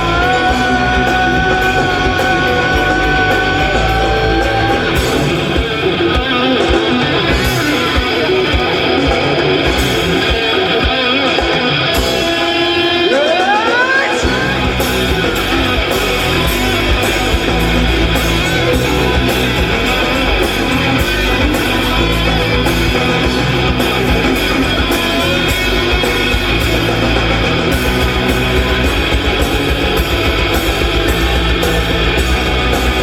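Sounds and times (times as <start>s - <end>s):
live rock band instrumental: 0.0s - 33.0s.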